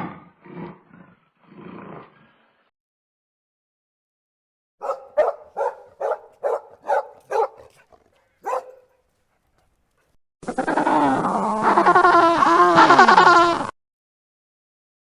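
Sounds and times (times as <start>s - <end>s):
dog barking: 4.8s - 10.1s.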